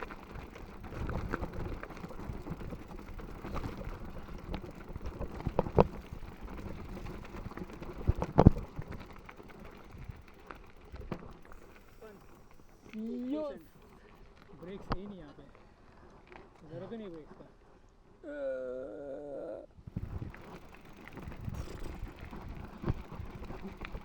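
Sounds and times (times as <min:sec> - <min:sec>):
tyres rumbling on dirt and rock: 0:00.0 - 0:14.0, 0:19.9 - 0:24.0
bike rattling and clicking: 0:00.0 - 0:17.5, 0:19.9 - 0:24.0.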